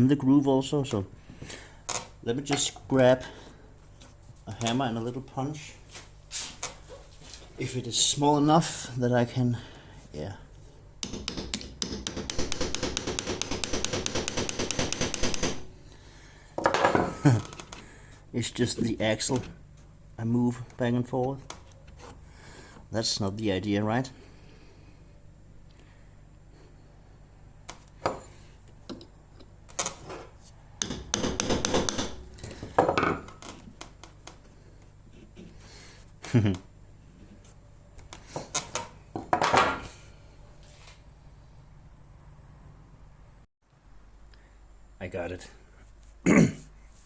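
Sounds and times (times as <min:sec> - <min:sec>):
hammer tapping steel punch: 0:11.0 - 0:15.6, 0:30.8 - 0:32.3.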